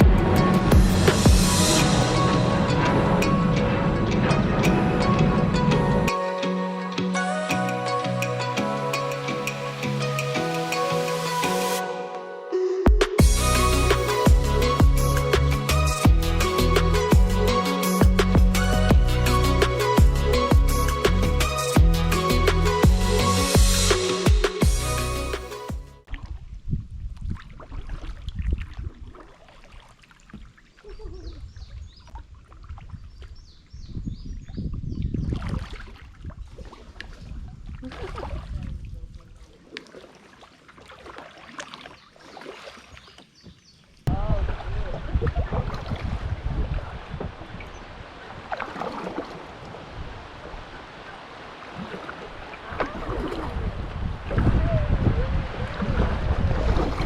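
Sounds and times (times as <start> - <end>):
wind noise on microphone: 0.0 - 6.1, 26.1 - 29.2, 31.0 - 39.4, 44.1 - 48.6, 49.7 - 50.7, 52.7 - 57.0
water noise: 0.0 - 57.0.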